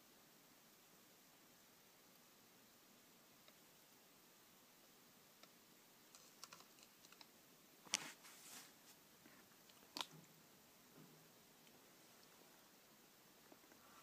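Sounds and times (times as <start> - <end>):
faint clicks: 5.4 - 8.0.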